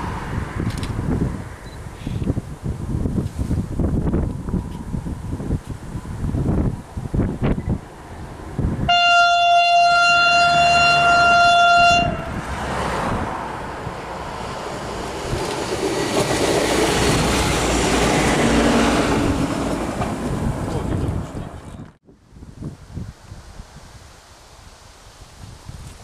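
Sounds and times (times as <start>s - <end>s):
train rumble: 0.0s - 22.0s
wind buffeting microphone: 0.0s - 26.0s
train horn: 8.9s - 12.4s.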